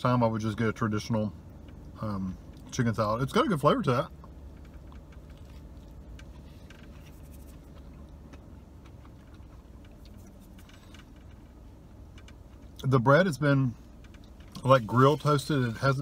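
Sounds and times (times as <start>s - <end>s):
low steady hum: 0.0s - 16.0s
person chewing crunchy food: 4.8s - 11.1s.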